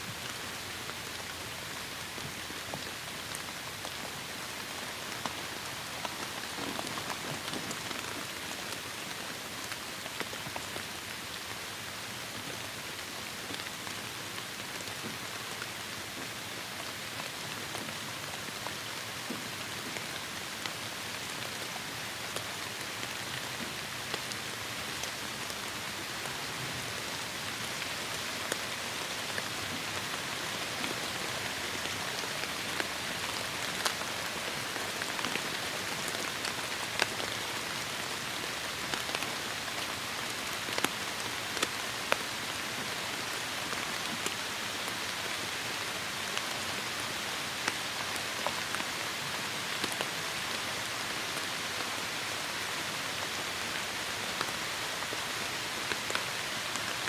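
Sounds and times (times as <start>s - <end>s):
raindrops striking close by: 0.1s - 57.0s
heavy rain falling: 0.2s - 10.8s.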